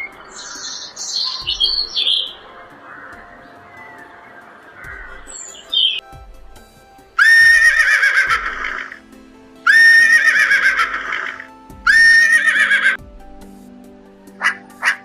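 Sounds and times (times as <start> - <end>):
background music with steady beat: 0.0 - 15.0
horse whinnying: 9.7 - 13.0.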